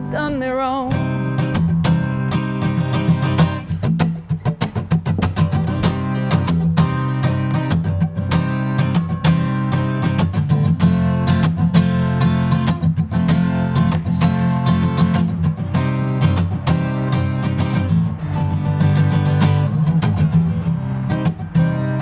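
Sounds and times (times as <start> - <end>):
person singing: 0.0 - 1.2
acoustic guitar strumming: 0.0 - 22.0.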